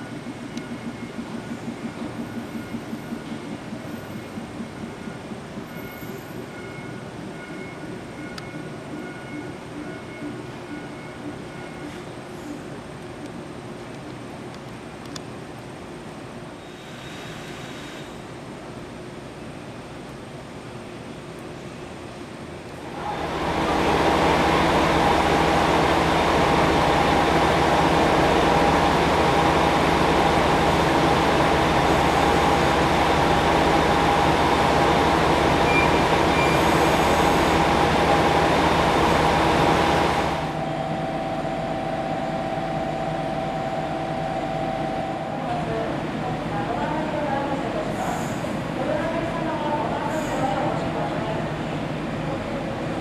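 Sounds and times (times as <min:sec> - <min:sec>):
electric train running: 0:22.9 - 0:48.2.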